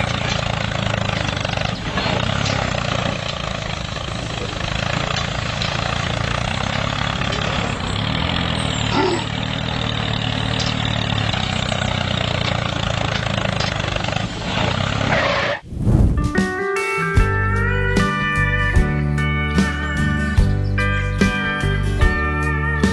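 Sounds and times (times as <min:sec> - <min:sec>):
engine running steadily: 0:00.0 - 0:15.6.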